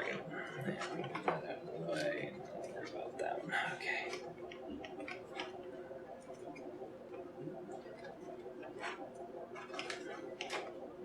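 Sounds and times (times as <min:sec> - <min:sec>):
light clicks of small parts: 0:04.0 - 0:10.9.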